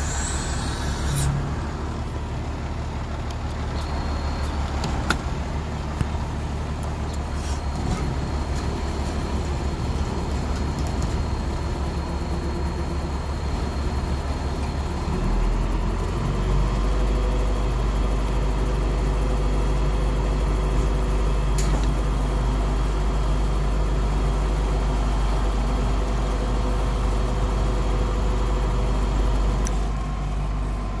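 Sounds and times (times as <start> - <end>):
gas engine running: 0.0 - 31.0.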